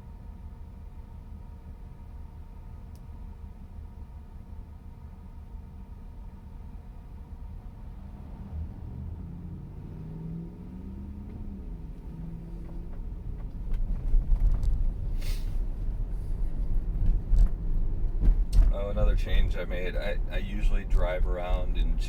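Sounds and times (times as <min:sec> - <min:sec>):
road and tyre rumble in car cabin: 0:00.0 - 0:22.0
short hiss: 0:15.2 - 0:15.6.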